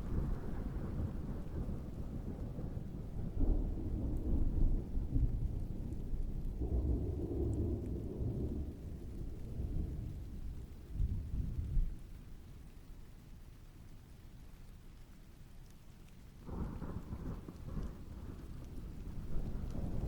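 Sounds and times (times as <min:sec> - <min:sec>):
distant thunder rumbling: 0:00.0 - 0:12.5, 0:16.4 - 0:20.0
steady rain: 0:00.0 - 0:20.0.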